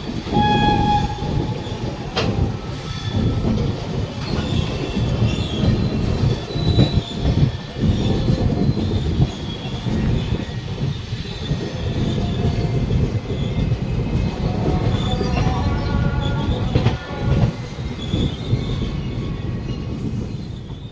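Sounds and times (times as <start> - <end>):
train wheels rumbling and clattering: 0.0 - 20.9
wheels squealing on track: 0.1 - 10.8.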